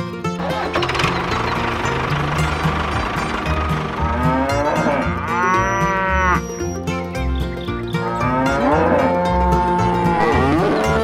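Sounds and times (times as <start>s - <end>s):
music with pulsing bass: 0.0s - 11.0s
cow mooing: 4.0s - 6.6s, 8.0s - 11.0s.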